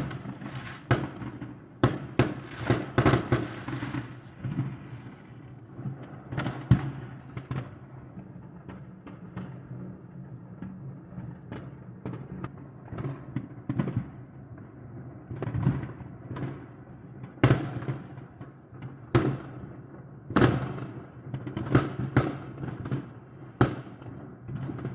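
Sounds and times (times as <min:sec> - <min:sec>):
loud firework bangs: 0:00.0 - 0:07.8
fireworks popping and crackling: 0:00.0 - 0:24.9.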